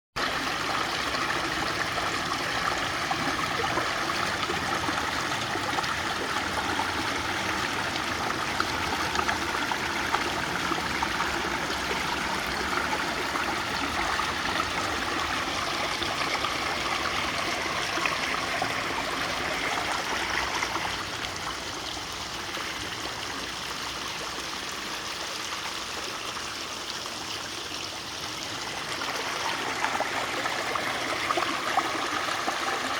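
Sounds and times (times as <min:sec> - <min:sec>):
stream flowing: 0:00.2 - 0:32.9.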